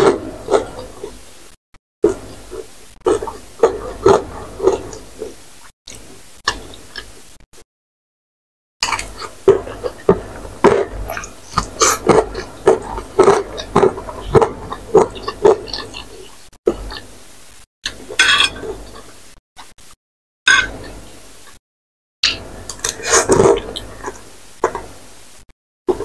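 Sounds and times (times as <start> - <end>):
wet chewing of noodles: 0.0 - 1.3, 2.0 - 7.2, 8.8 - 17.1.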